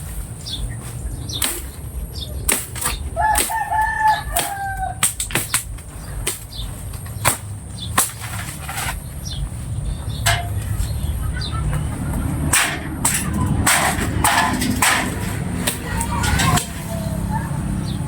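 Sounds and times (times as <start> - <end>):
rooster crowing: 3.2 - 5.1.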